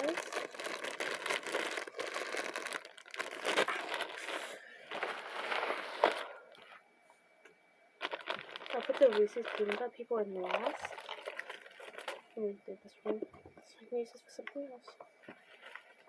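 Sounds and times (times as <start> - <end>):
plastic wrappers crinkling: 0.0 - 6.8, 8.0 - 12.5, 15.2 - 16.0.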